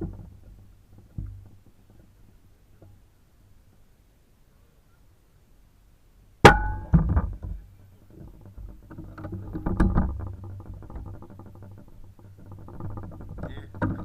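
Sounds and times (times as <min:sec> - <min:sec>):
weaker crack: 0:06.4 - 0:07.7
rustling and clicks: 0:06.9 - 0:14.0.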